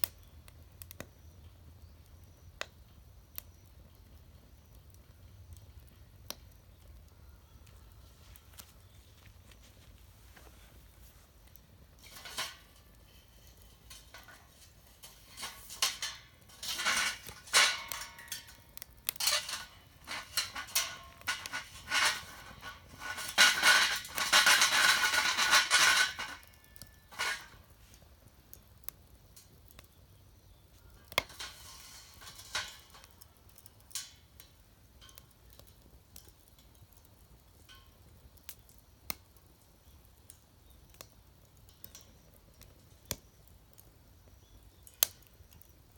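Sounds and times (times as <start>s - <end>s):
metal clattering and clinking: 11.5s - 27.7s, 31.0s - 37.1s.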